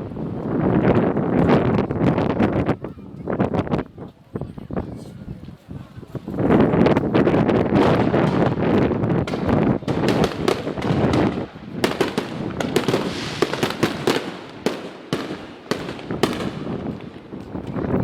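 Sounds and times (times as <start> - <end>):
fireworks bangs and crackles: 6.1 - 18.0.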